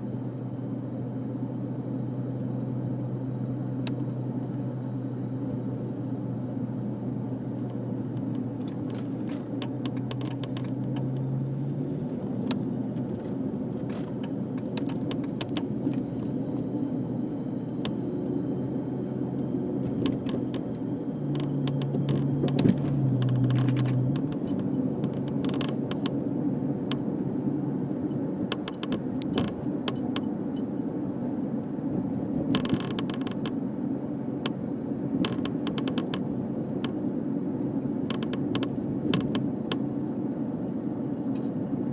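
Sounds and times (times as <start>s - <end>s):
car exhaust hum: 0.0s - 41.9s
light rattles and clicks: 7.6s - 16.4s, 19.8s - 27.1s, 28.1s - 30.7s, 32.5s - 33.6s, 35.2s - 37.0s, 38.1s - 39.8s.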